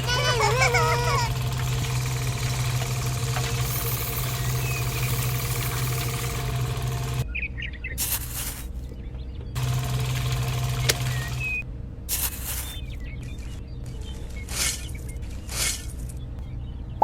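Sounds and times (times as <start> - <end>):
small motor humming: 0.0 - 7.2, 9.6 - 11.6.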